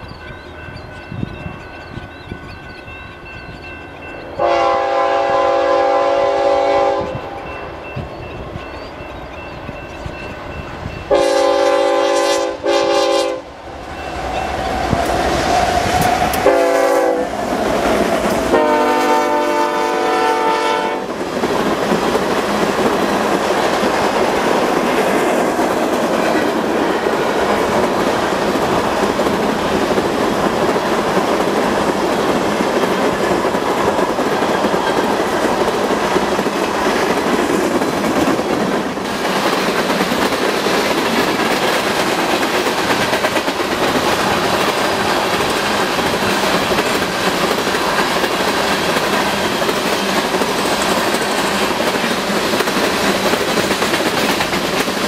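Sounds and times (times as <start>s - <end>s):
train wheels on rails: 0.0s - 55.0s
locomotive horn blasts: 4.4s - 7.4s, 11.1s - 13.6s, 16.4s - 17.3s, 18.5s - 21.1s.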